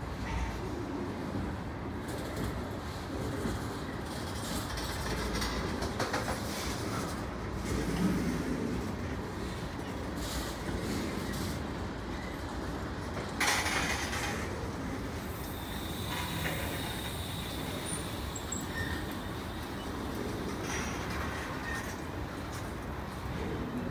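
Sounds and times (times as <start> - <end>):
train wheels rumbling on rail: 0.0 - 23.9
train clatter: 1.2 - 23.9.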